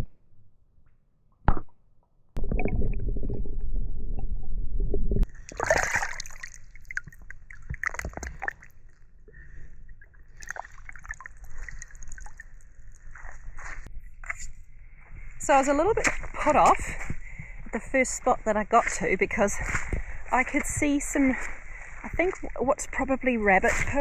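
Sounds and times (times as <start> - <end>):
water sloshing and splashing: 5.2 - 13.9.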